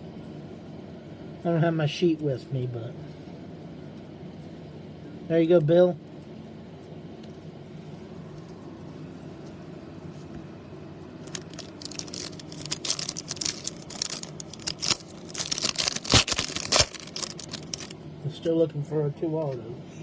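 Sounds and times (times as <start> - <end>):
faint steady hum: 0.0 - 20.0
cards being handled: 11.2 - 17.9
foil wrapper crinkling: 11.2 - 18.0.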